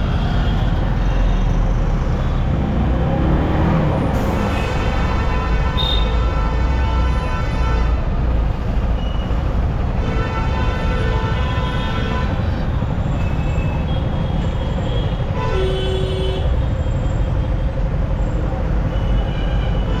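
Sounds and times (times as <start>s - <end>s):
vehicle horns: 4.1s - 16.7s.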